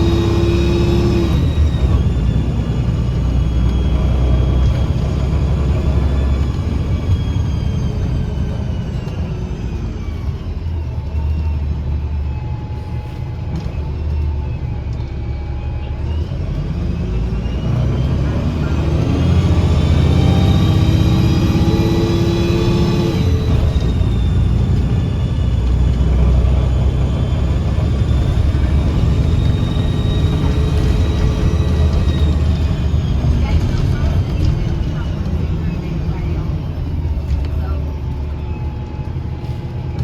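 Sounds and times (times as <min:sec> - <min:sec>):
bus engine accelerating: 0:00.0 - 0:40.0.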